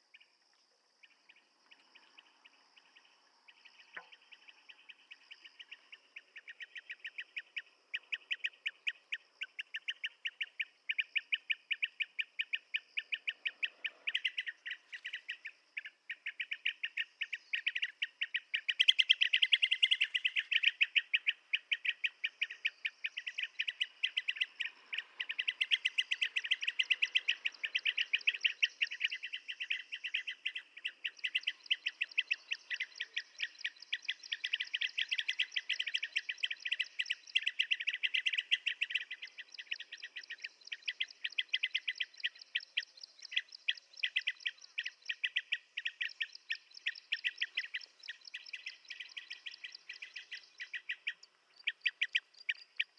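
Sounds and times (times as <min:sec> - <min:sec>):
birds chirping rapidly: 0:01.0 - 0:52.9.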